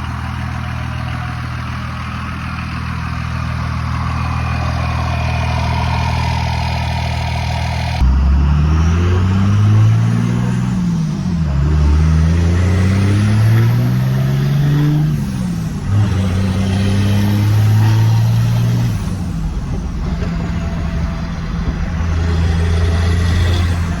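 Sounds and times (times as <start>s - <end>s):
diesel engine accelerating: 0.0s - 24.0s
turbocharger whistle: 4.0s - 9.9s, 12.5s - 19.4s, 20.2s - 24.0s.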